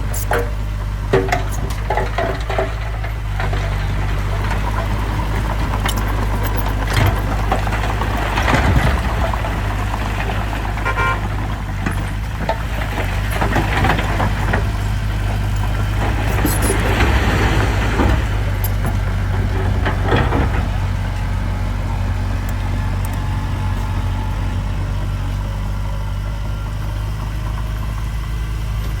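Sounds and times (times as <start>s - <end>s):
metal clanks: 0.0s - 9.6s, 10.8s - 21.4s
heavy diesel machinery running: 0.0s - 29.0s.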